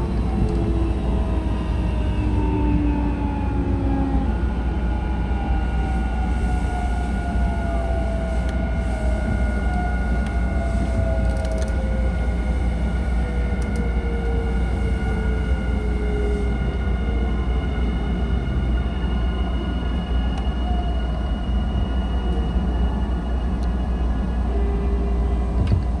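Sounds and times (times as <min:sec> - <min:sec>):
electric train rumbling: 0:00.0 - 0:26.0
train motor whine: 0:05.3 - 0:18.4.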